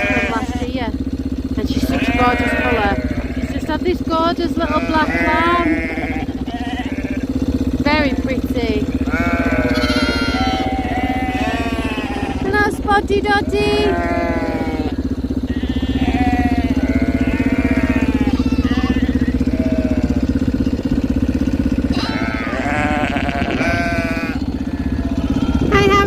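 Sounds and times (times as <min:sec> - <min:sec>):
sheep bleating: 0:00.0 - 0:01.0, 0:01.6 - 0:20.4, 0:21.9 - 0:26.0
vehicle engine humming: 0:00.0 - 0:26.0.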